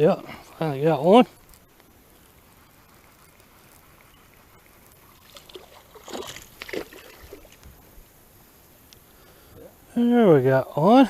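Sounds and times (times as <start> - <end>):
water lapping around boat: 2.1 - 8.0.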